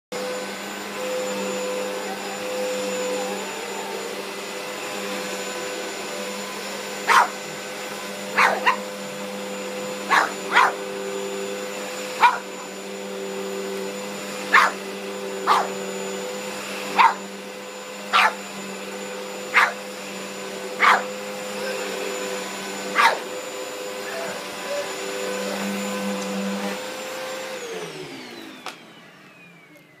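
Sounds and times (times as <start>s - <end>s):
vacuum cleaner running: 0.1s - 30.0s
dog barking: 7.0s - 7.4s, 8.3s - 8.9s, 10.0s - 10.8s, 12.2s - 12.6s, 14.5s - 14.8s, 15.4s - 15.7s, 16.9s - 17.3s, 18.1s - 18.4s, 19.5s - 19.8s, 20.8s - 21.8s, 22.9s - 23.3s.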